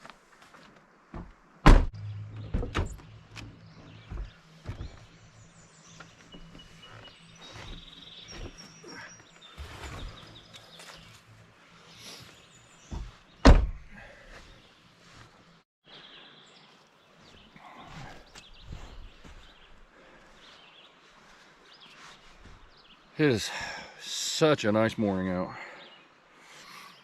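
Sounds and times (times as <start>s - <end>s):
loud thump: 1.2s - 3.0s, 12.9s - 13.9s
birds chirping: 1.2s - 27.0s.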